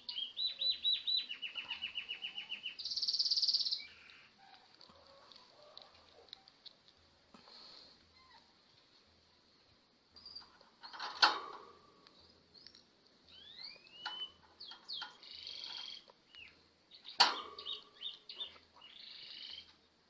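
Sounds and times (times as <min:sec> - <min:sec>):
lovebird chirping and squawking: 0:00.1 - 0:04.4, 0:13.3 - 0:19.7.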